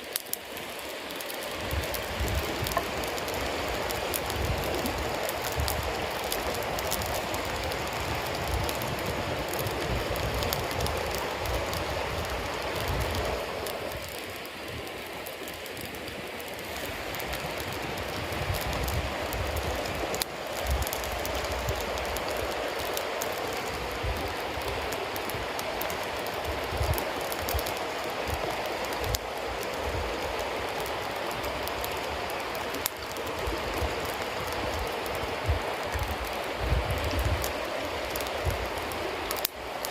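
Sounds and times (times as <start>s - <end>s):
bonfire hissing and crackling: 0.0s - 39.9s.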